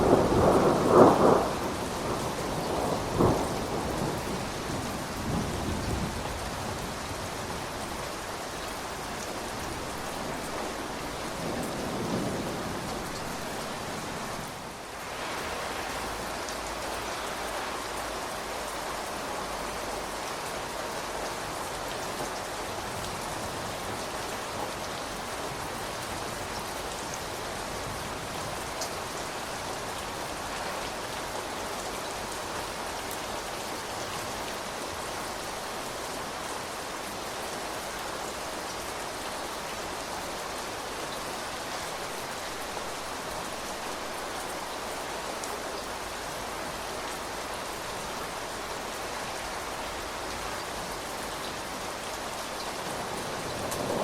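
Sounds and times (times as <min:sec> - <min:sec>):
thunder rumbling: 0:00.0 - 0:06.9, 0:52.8 - 0:54.0
steady rain: 0:00.0 - 0:54.0.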